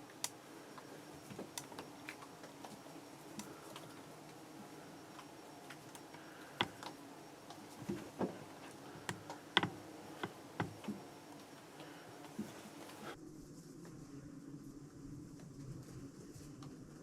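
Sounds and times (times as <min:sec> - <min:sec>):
light clicks and crackles: 0:00.0 - 0:13.2.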